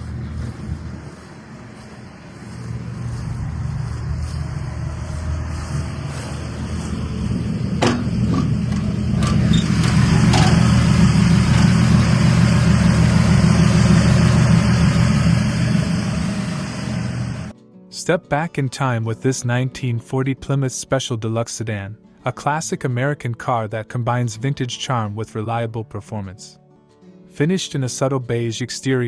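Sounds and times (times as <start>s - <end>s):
car engine running: 0.0s - 17.5s.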